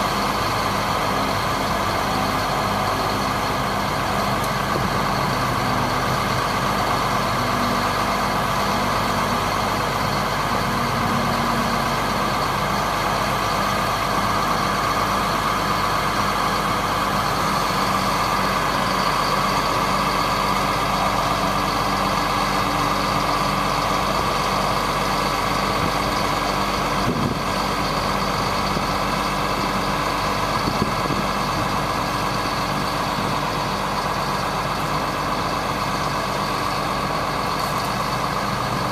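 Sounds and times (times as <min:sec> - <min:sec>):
truck engine idling: 0:00.0 - 0:38.9.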